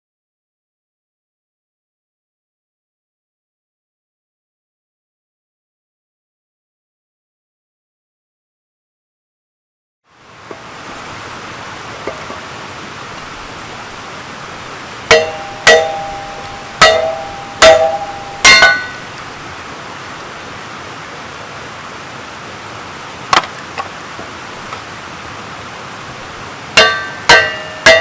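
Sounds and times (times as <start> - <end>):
hammer blows with metallic ring: 15.1 - 19.2, 26.8 - 28.0
light knocks: 23.3 - 24.9.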